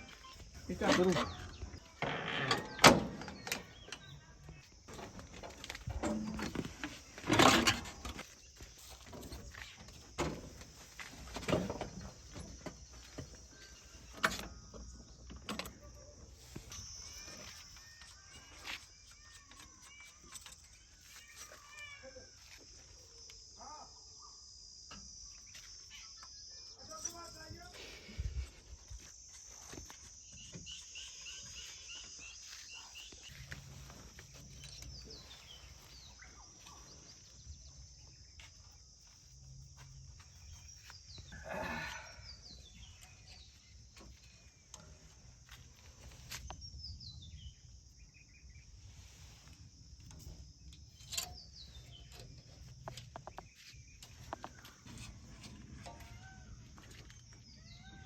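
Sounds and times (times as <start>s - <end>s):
high insect drone: 0.0s - 58.0s
bird chirps: 30.2s - 39.1s.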